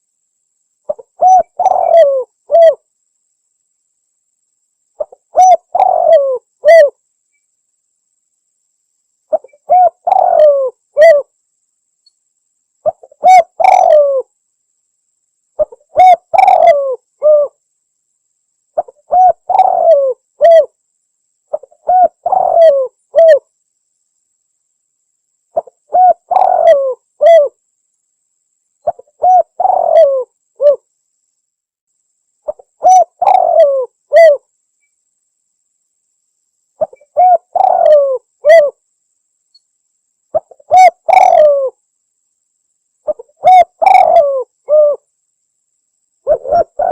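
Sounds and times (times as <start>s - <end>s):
dove cooing: 0.9s - 2.8s, 5.0s - 7.0s, 9.3s - 11.3s, 12.8s - 14.3s, 15.6s - 17.6s, 18.8s - 20.8s, 21.5s - 23.5s, 25.6s - 27.6s, 28.8s - 30.8s, 32.5s - 34.5s, 36.8s - 38.8s, 40.3s - 41.8s, 43.1s - 45.0s, 46.3s - 46.9s.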